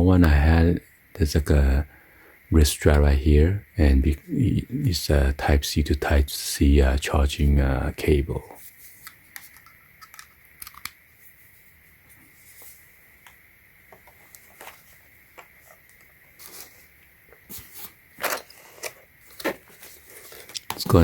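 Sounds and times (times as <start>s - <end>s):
packaging rustling and crinkling: 14.0s - 21.0s.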